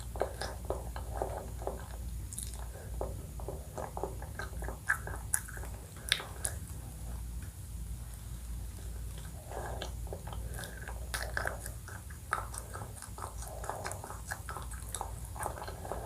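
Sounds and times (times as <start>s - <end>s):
wet mouth sounds: 0.0s - 6.8s, 8.9s - 16.0s
chewing ice cream and cake: 0.0s - 16.0s
sharp mouth clicks: 4.3s - 6.7s.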